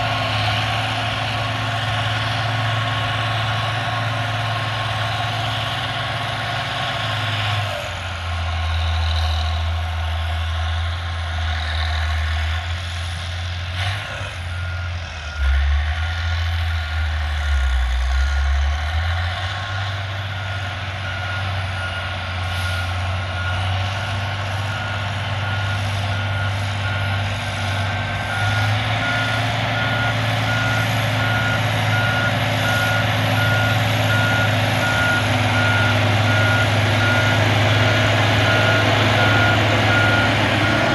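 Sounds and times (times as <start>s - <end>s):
heavy diesel machinery engine: 0.0s - 40.9s
reversing alarm beeping: 20.3s - 40.9s.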